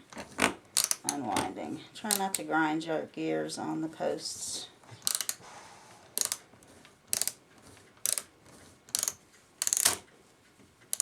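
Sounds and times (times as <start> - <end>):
clock ratchet clicking: 0.8 - 1.2, 5.0 - 5.4, 6.2 - 6.4, 7.1 - 7.4, 8.0 - 8.3, 8.9 - 10.1.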